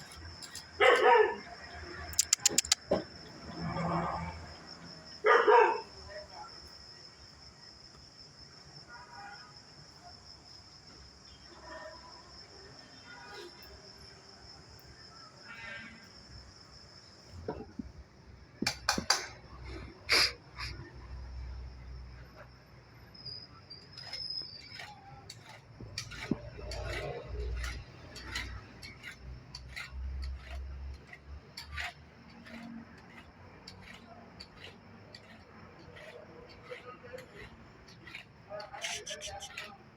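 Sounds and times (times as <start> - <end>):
crickets chirping: 0.0 - 39.9
sharp clicks and knocks: 2.1 - 3.1, 18.6 - 19.4.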